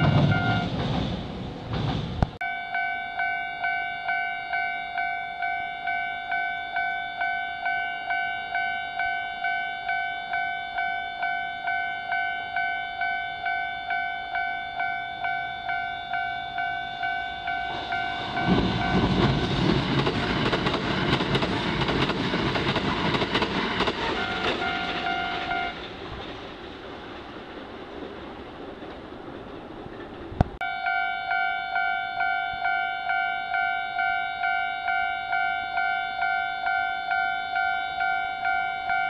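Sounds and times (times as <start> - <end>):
level crossing warning bell: 0.0 - 0.7, 2.4 - 19.4, 24.1 - 25.8, 30.6 - 39.0
train rumbling over crossing: 0.0 - 39.0.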